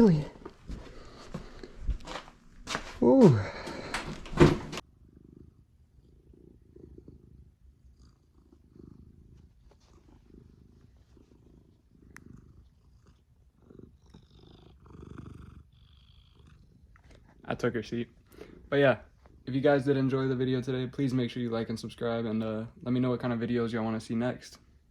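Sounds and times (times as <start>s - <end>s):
cat purring: 4.8s - 24.0s.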